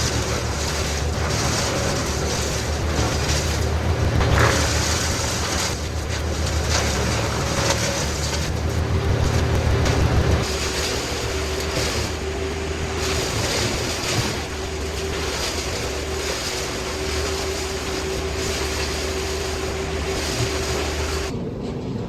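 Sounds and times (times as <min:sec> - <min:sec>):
steady rushing noise: 0:00.0 - 0:21.6
machine engine humming: 0:00.0 - 0:22.0.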